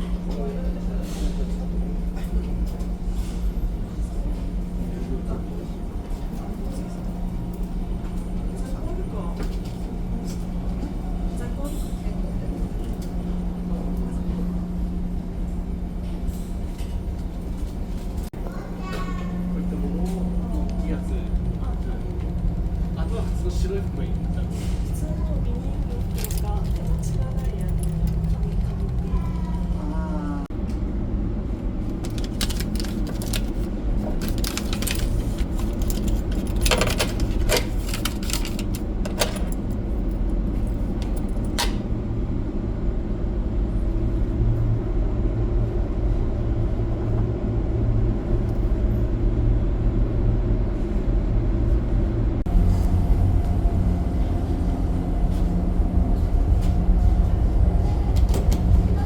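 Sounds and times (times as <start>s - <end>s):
ship engines rumbling: 0.0s - 59.0s
sharp clicks and rattles: 25.2s - 29.8s, 31.9s - 33.6s, 34.2s - 39.6s.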